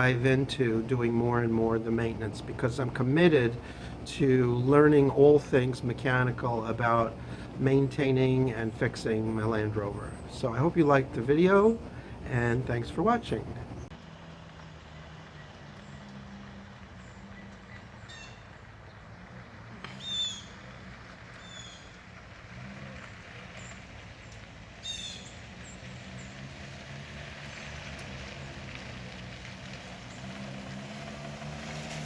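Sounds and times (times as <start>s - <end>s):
steady low hum: 0.0s - 14.0s
bird chirping: 7.3s - 14.0s, 19.9s - 20.6s, 21.4s - 22.0s.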